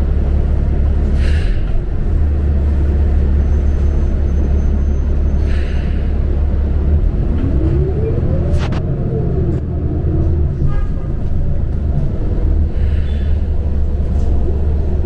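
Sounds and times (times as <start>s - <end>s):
bus engine drone: 0.0s - 15.0s
whine rising in pitch: 7.7s - 9.6s.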